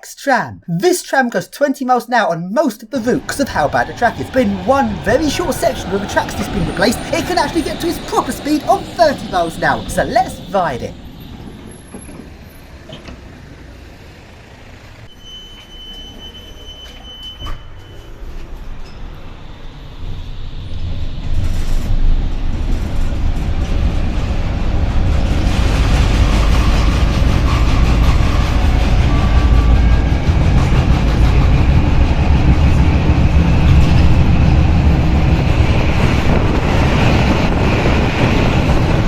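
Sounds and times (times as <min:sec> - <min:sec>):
steady high tone: 0:00.0 - 0:11.0
tram wheels and motor rumbling: 0:03.1 - 0:15.1, 0:17.7 - 0:39.0.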